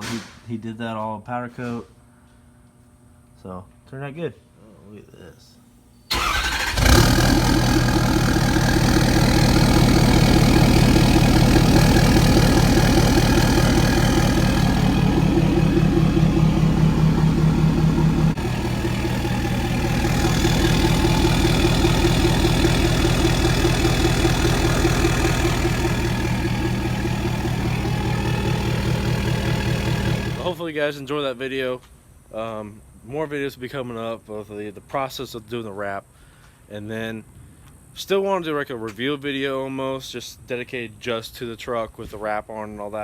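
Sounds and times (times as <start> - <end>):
diesel engine idling: 6.1 - 30.6.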